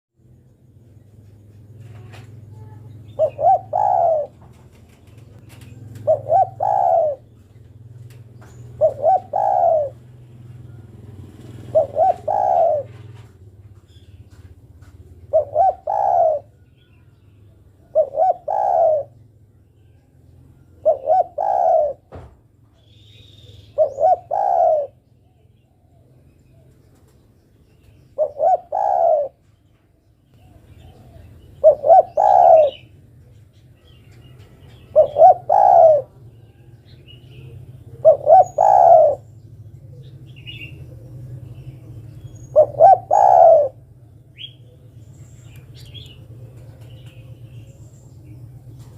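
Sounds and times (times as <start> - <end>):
dove cooing: 1.8 - 13.4, 15.0 - 16.7, 17.7 - 19.3, 20.5 - 22.3, 23.1 - 26.7, 28.1 - 29.5, 30.4 - 47.5.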